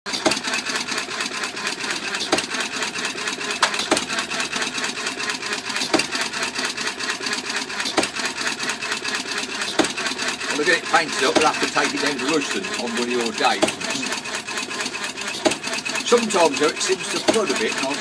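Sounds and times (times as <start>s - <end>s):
sharp engine knock: 0.1s - 0.5s, 2.2s - 2.6s, 3.6s - 4.6s, 5.8s - 6.4s, 7.9s - 8.3s, 9.7s - 10.3s, 11.2s - 12.2s, 13.6s - 13.9s, 15.3s - 16.0s, 17.2s - 18.0s
engine mechanical clatter: 0.1s - 18.0s.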